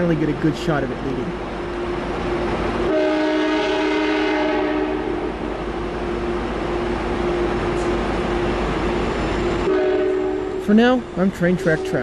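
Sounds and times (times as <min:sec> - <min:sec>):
passing train running noise: 0:00.0 - 0:12.0
higher horn tones: 0:02.8 - 0:05.5, 0:09.6 - 0:10.9
train horn chord: 0:02.8 - 0:05.5, 0:09.6 - 0:10.7.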